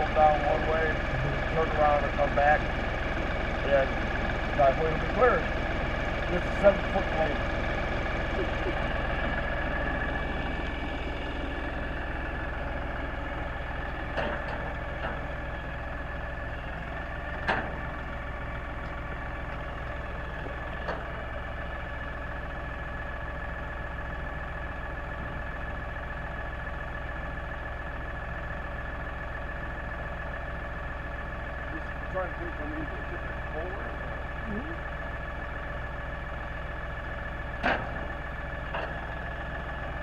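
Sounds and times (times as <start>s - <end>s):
diesel tractor engine running: 0.0s - 40.0s
high whine: 0.8s - 2.2s.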